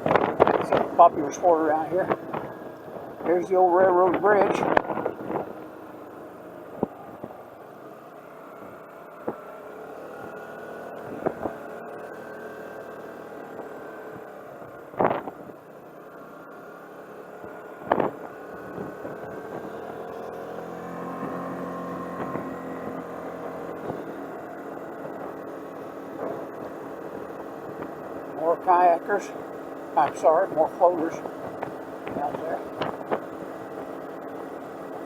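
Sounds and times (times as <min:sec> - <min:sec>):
car engine and road hum: 0:00.0 - 0:35.0
thumps from road bumps: 0:14.9 - 0:15.5, 0:17.8 - 0:19.8, 0:22.1 - 0:22.7, 0:23.7 - 0:24.3, 0:26.2 - 0:28.2, 0:31.2 - 0:34.0.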